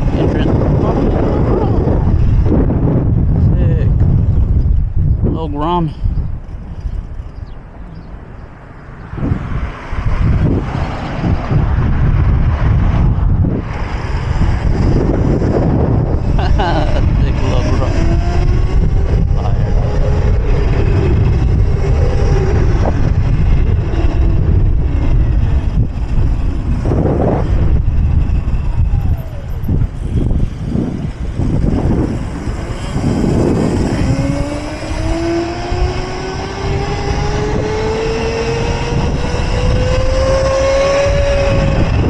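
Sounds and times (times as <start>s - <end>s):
road noise: 0.0s - 42.0s
wind buffeting microphone: 0.0s - 42.0s
electric motor whine rising: 20.0s - 42.0s.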